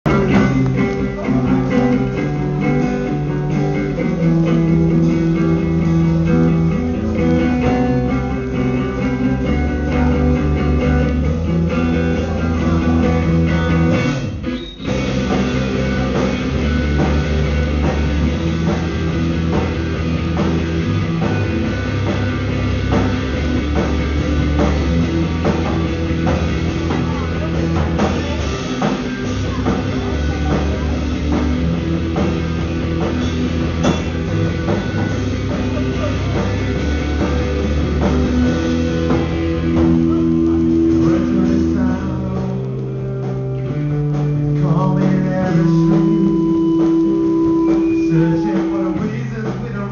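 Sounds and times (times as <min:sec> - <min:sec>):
bass guitar: 0:00.0 - 0:49.9
drum kit beat: 0:00.0 - 0:49.9
electric guitar: 0:00.0 - 0:49.9
person singing: 0:00.1 - 0:14.2, 0:38.0 - 0:43.4, 0:44.5 - 0:49.9.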